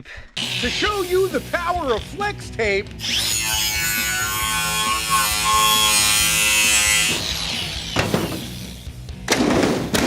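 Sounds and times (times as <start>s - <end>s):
pitched mechanical buzz: 0.4s - 1.4s.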